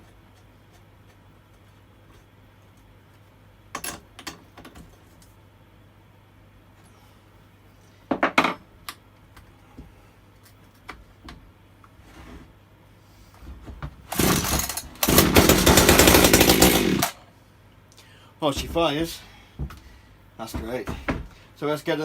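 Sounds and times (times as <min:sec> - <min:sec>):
chainsaw pull-start: 0:14.1 - 0:17.2
chainsaw engine running loudly: 0:14.2 - 0:17.2.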